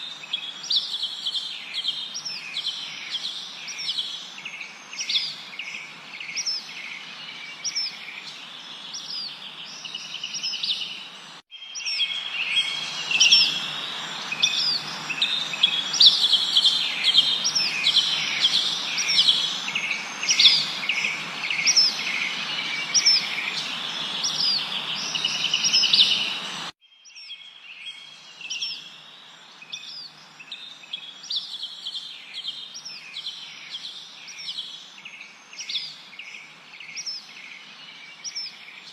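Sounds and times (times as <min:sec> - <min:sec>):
steady background hiss: 0:00.0 - 0:26.7
birds chirping and whistling: 0:00.0 - 0:29.0.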